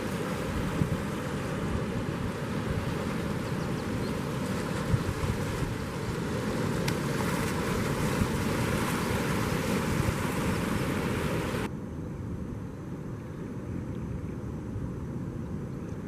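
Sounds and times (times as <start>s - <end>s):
wind buffeting microphone: 0.0s - 11.7s
surf and rushing water: 0.0s - 11.8s.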